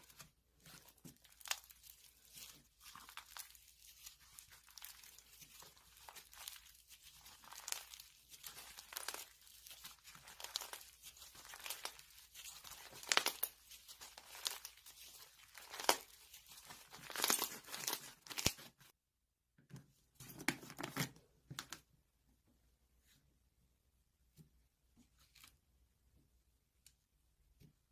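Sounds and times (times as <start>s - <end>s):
crinkling and tearing: 0.0s - 18.9s.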